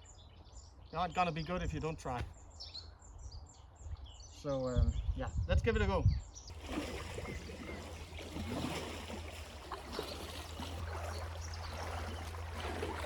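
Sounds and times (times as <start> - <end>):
fast river current: 6.5 - 13.0
small water splashes: 6.5 - 13.0.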